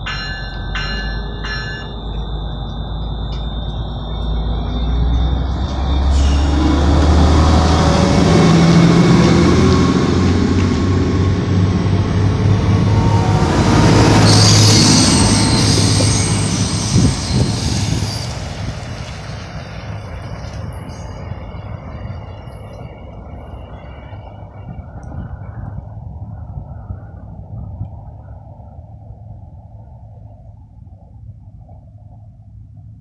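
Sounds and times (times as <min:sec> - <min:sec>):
high-pitched wheel squeal: 0:00.0 - 0:07.2, 0:12.5 - 0:18.6
train wheels rolling on rails: 0:00.0 - 0:25.8
diesel engine drone: 0:00.0 - 0:33.0.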